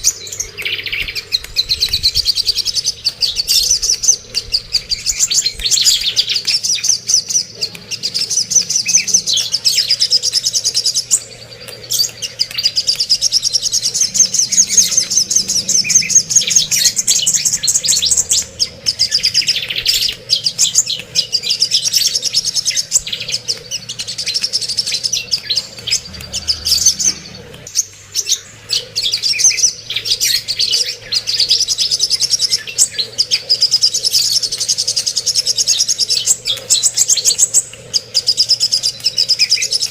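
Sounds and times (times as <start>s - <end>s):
songbird chattering song: 0.0s - 39.9s.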